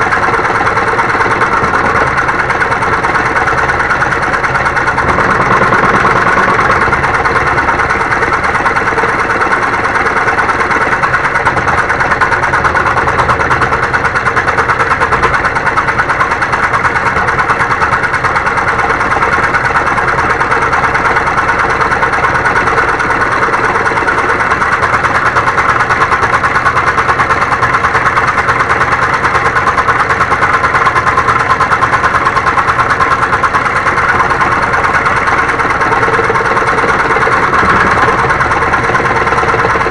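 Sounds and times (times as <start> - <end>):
scroll saw cutting wood: 0.0 - 11.1, 34.0 - 39.9.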